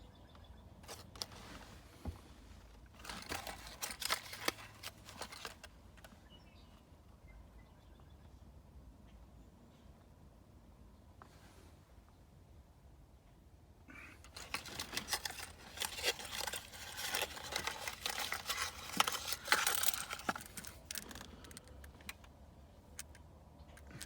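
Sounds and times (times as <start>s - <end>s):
packaging crinkling and rustling: 2.9s - 5.7s, 14.2s - 22.2s.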